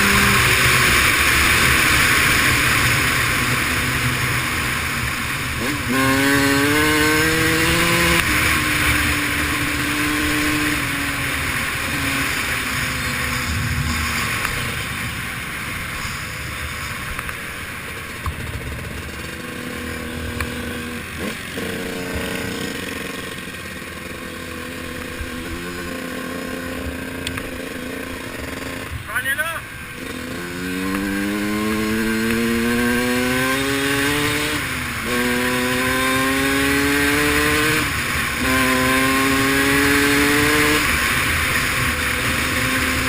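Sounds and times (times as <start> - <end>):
dirt bike engine revving: 0.0 - 43.0
wind: 0.0 - 43.0
gravel noise: 8.2 - 24.2.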